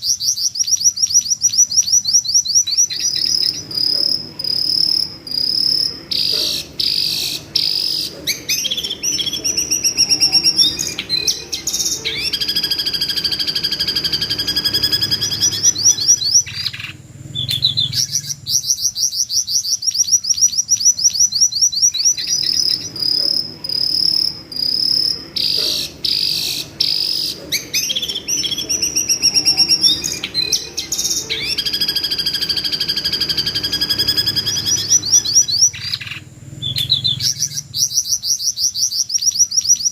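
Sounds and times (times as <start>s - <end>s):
bird screeching: 0.0s - 39.9s
high ticking bird trill: 0.0s - 39.9s.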